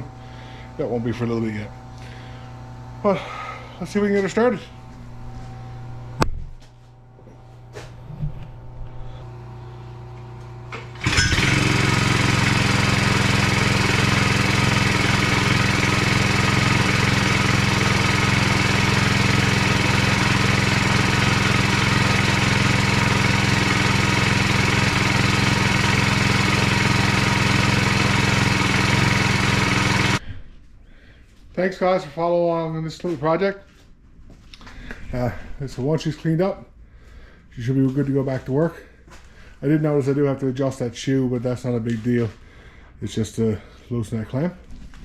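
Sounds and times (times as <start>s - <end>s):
small engine running: 9.0s - 30.2s.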